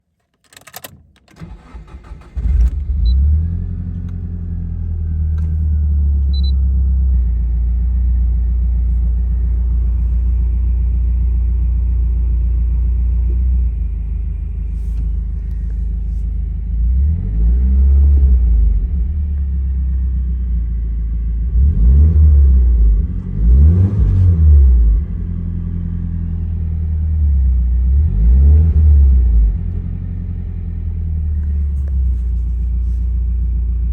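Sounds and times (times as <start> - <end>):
engine starter cranking: 0.5 - 3.0
car engine idling: 1.4 - 17.3, 18.2 - 33.9
engine revving: 16.8 - 19.1, 21.4 - 26.2, 27.8 - 30.8.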